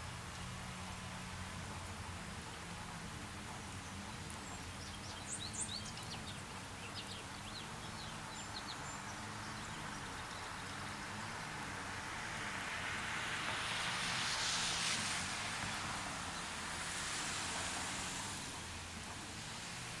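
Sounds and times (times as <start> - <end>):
hiss: 12.0 - 20.0.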